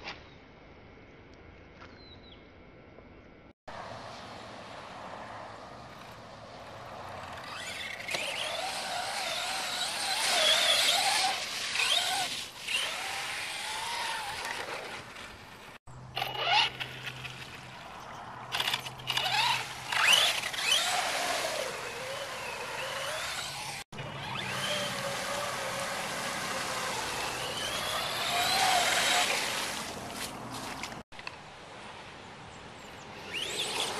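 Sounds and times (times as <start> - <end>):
electric motor and gears whining: 5.8 - 17.8, 18.4 - 31.0, 33.1 - 33.9.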